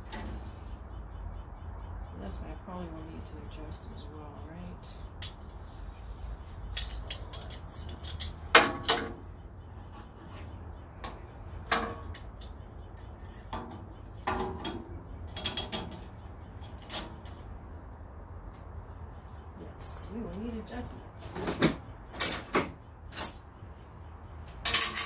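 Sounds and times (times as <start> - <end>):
low steady hum: 0.0 - 25.0
metal clanks and clicks: 24.5 - 25.0.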